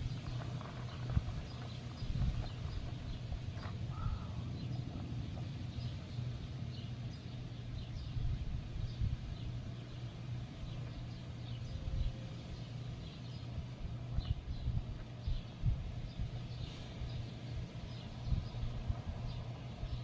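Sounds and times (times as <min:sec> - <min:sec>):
low rumble: 0:00.0 - 0:20.0
faint bird chirps: 0:00.9 - 0:05.0.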